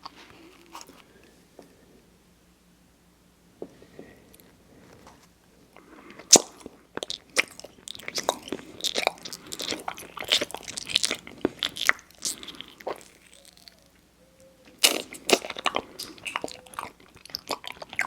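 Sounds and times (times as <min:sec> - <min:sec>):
wet sticky chewing: 0:06.1 - 0:14.0, 0:14.6 - 0:18.0.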